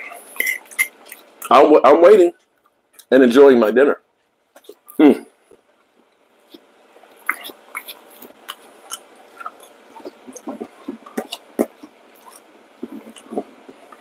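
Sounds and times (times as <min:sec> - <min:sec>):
person chewing crunchy food: 0:00.0 - 0:01.6, 0:06.4 - 0:14.0.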